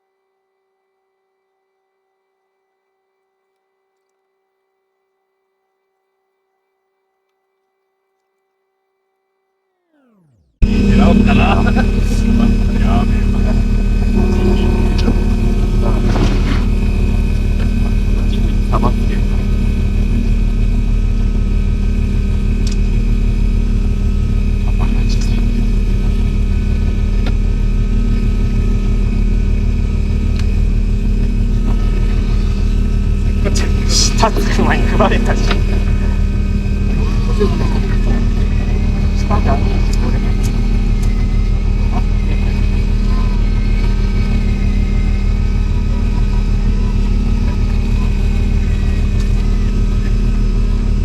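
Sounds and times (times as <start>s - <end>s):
boat engine humming: 10.4s - 51.0s.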